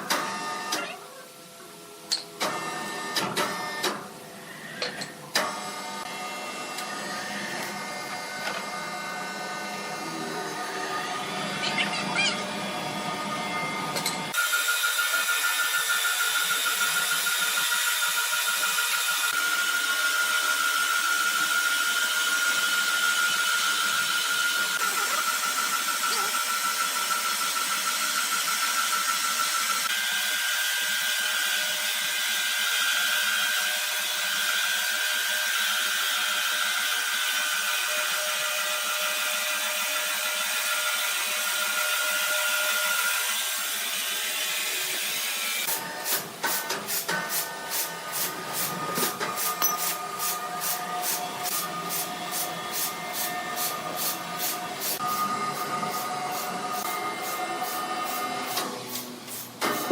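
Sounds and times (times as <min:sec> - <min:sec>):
sawmill saw whining: 0:14.3 - 0:45.8.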